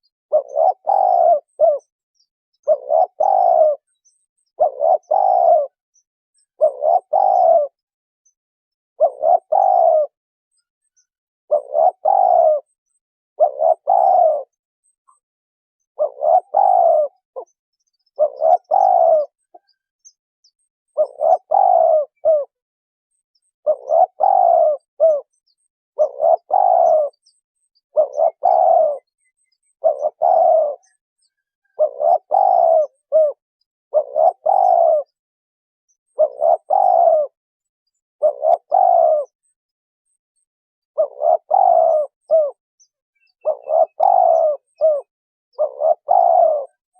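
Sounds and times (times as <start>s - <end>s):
dove cooing: 0.0s - 2.0s, 2.6s - 5.8s, 6.5s - 7.9s, 9.0s - 10.2s, 11.5s - 12.8s, 13.4s - 15.2s, 15.9s - 19.8s, 20.9s - 22.6s, 23.6s - 25.4s, 26.0s - 35.2s, 36.1s - 37.4s, 38.2s - 39.4s, 40.9s - 42.6s, 43.2s - 46.9s.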